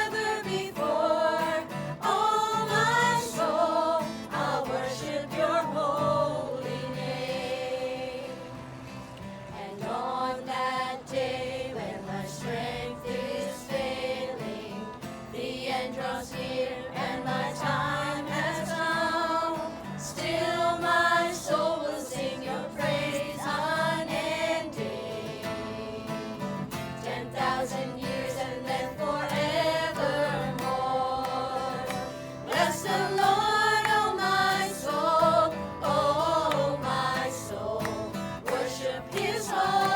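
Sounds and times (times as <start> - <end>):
acoustic guitar strumming: 0.0 - 39.9
group singing gospel song: 0.0 - 39.9.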